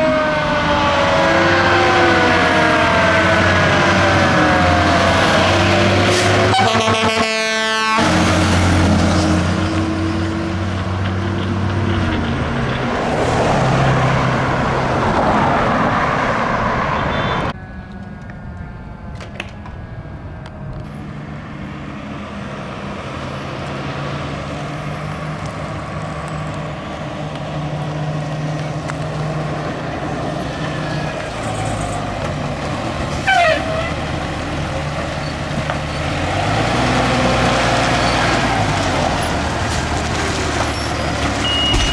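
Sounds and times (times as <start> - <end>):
horn blast: 0.0 - 10.0, 33.1 - 34.1
fire engine diesel passing: 0.0 - 41.9
vehicle engine and traffic noise: 0.0 - 41.9.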